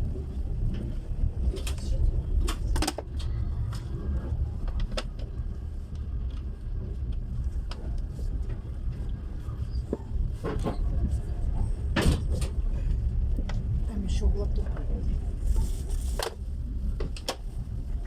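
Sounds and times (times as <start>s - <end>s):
train rumbling: 0.0s - 18.0s.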